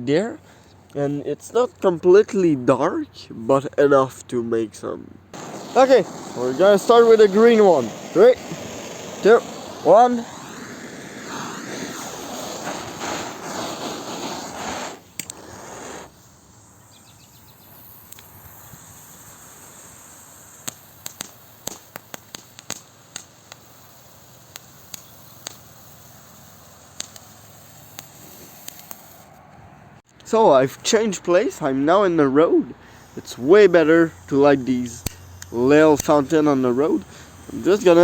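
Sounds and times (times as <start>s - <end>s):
firework sharp crackles: 5.3s - 29.4s, 32.8s - 38.0s
fountain firework hissing: 5.3s - 29.4s, 32.7s - 38.0s.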